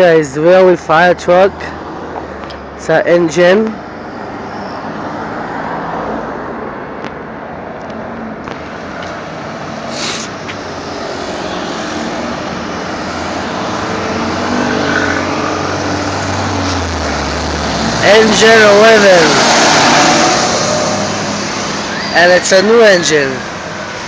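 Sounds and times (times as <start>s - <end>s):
brief hiss: 9.9s - 10.4s.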